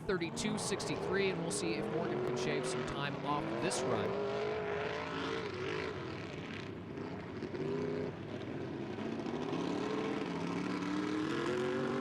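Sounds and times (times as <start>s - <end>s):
truck engine revving hard: 9.0s - 12.0s.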